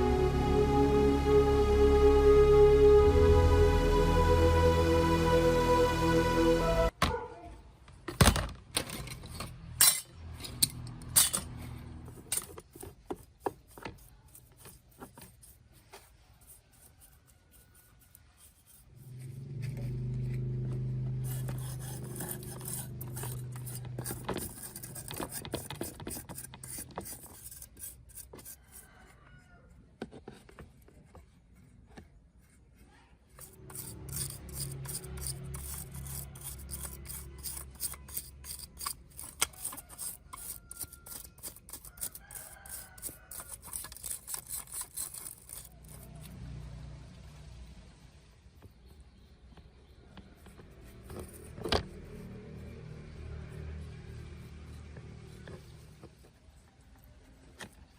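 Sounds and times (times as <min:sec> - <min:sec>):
filing or scraping strokes: 0:09.0 - 0:29.3, 0:30.2 - 0:46.7, 0:48.7 - 0:57.9.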